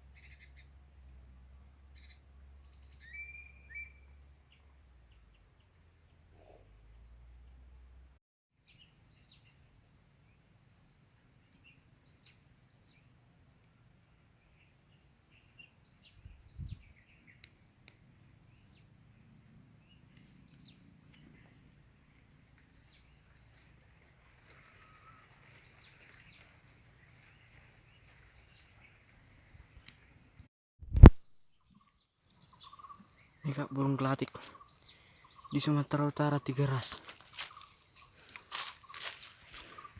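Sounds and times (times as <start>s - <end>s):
faint high insect drone: 0.0s - 30.5s, 32.2s - 39.9s
birds chirping: 19.8s - 30.4s, 31.5s - 39.9s.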